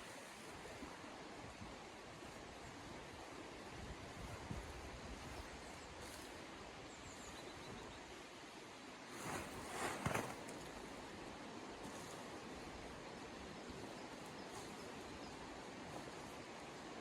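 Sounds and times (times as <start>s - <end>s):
rustling: 9.1s - 11.0s.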